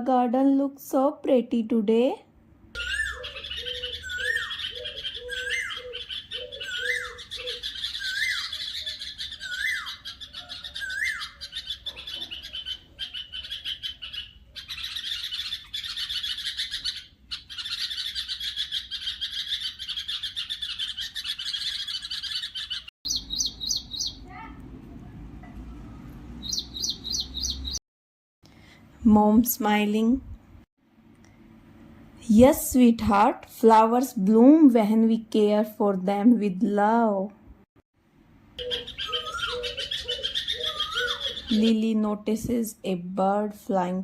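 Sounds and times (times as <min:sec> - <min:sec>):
bird rising and falling call: 0:02.8 - 0:24.4, 0:26.4 - 0:27.8, 0:38.6 - 0:41.7
rapid high bird chirping: 0:02.8 - 0:24.5, 0:26.4 - 0:27.8, 0:38.6 - 0:41.8
high twittering bird chorus: 0:02.8 - 0:24.6, 0:25.6 - 0:27.8, 0:38.6 - 0:42.0.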